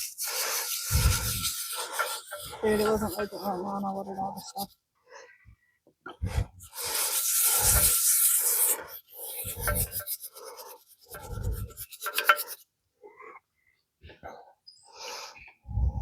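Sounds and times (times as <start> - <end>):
brush scrubbing metal: 0.0 - 4.8, 6.6 - 12.7.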